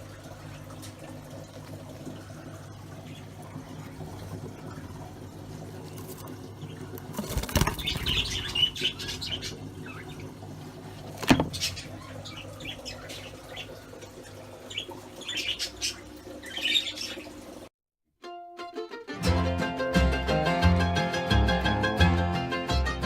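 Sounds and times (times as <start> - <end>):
budgerigars chirping: 7.6 - 10.3, 11.5 - 13.8, 14.7 - 17.3
plucked-string music: 18.2 - 23.0.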